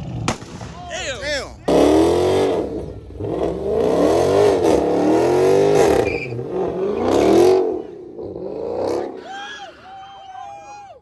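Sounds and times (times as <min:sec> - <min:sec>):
car engine revving hard: 0:01.7 - 0:09.2.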